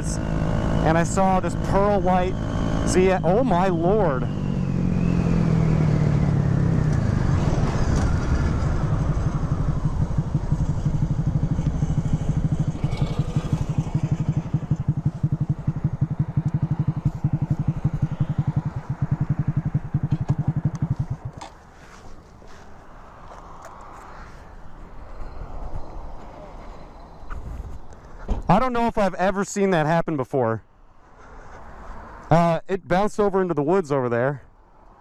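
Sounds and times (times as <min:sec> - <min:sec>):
motorcycle engine idling: 0:00.0 - 0:23.3.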